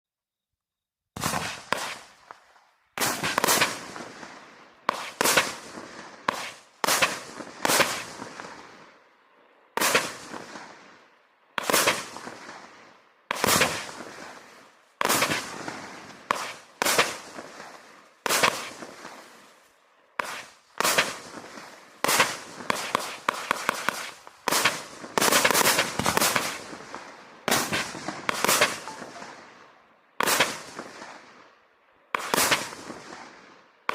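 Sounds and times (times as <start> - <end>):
firework barrage bangs: 1.2 - 2.1, 3.0 - 4.3, 4.9 - 8.5, 13.3 - 14.4, 15.0 - 19.2, 20.2 - 26.9, 27.5 - 29.3.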